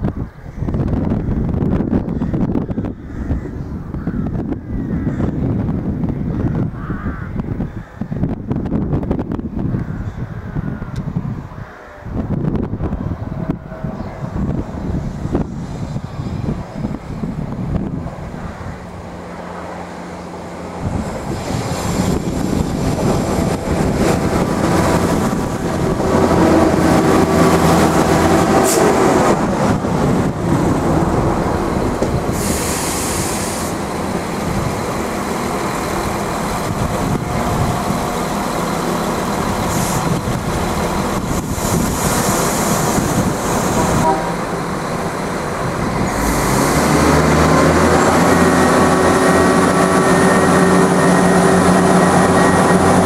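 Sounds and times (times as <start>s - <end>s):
diesel engines droning: 10.2s - 53.0s
train wheels on rails: 12.8s - 53.0s
short bursts of high hiss: 32.3s - 33.9s.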